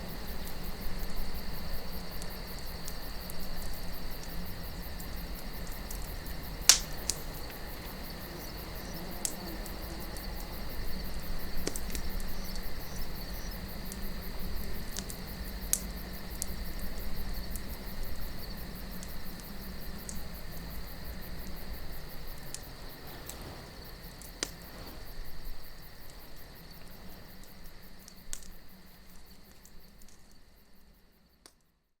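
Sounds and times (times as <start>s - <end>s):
campfire crackling: 0.0s - 31.7s
crickets chirring: 0.0s - 32.0s.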